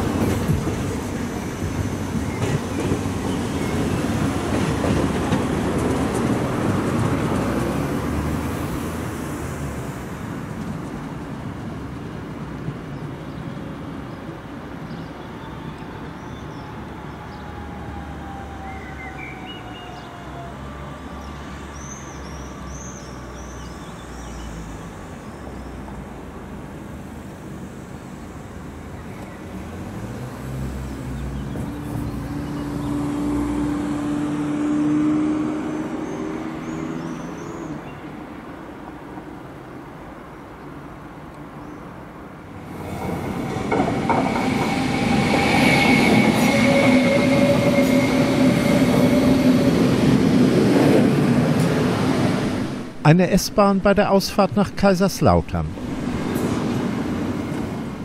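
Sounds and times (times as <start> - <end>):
train wheels rumbling on track: 0.0 - 9.3, 42.5 - 53.0, 55.7 - 58.0.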